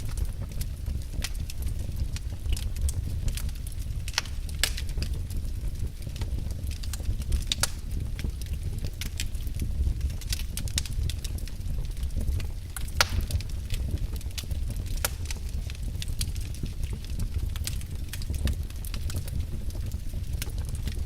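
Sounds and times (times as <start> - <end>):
fire crackling in fireplace: 0.0 - 21.0.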